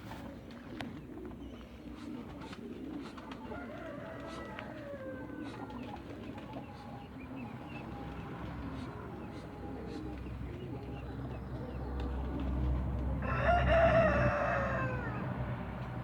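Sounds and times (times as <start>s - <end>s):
low wavering cooing calls: 0.8s - 8.1s.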